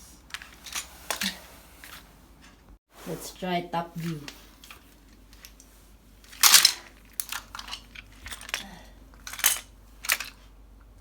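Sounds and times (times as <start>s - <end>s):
plastic toy pieces clattering: 6.2s - 10.5s.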